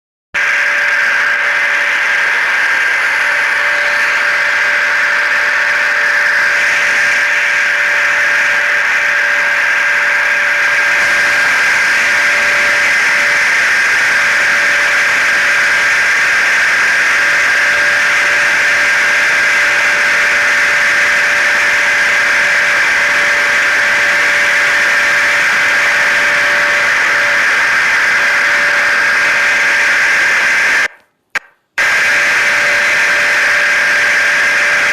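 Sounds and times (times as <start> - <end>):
machine drone white noise: 0.4 - 30.9, 31.8 - 34.9
thin steady whine: 0.4 - 34.9.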